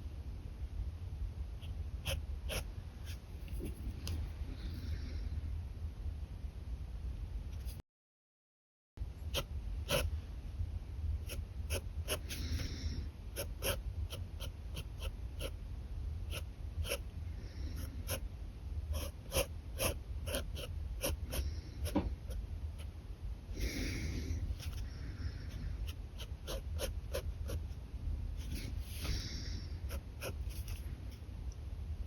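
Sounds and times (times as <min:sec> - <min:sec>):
steady low hum: 0:00.0 - 0:07.6, 0:09.0 - 0:32.0
pen scratching on paper: 0:02.0 - 0:03.8, 0:09.3 - 0:10.1, 0:11.2 - 0:12.7, 0:13.4 - 0:15.6, 0:16.3 - 0:17.1, 0:17.8 - 0:18.2, 0:18.9 - 0:22.9, 0:25.8 - 0:27.7, 0:28.4 - 0:30.9.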